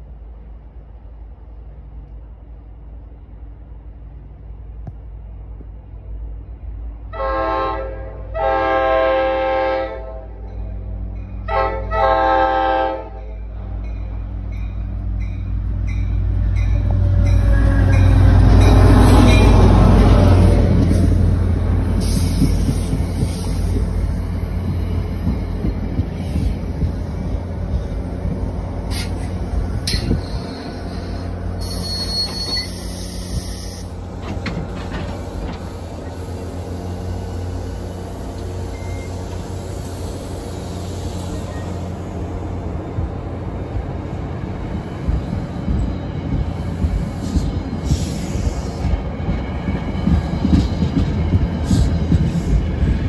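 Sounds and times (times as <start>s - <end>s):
diesel locomotive engine rumble: 0.0s - 53.0s
wheel squeal: 29.9s - 36.2s.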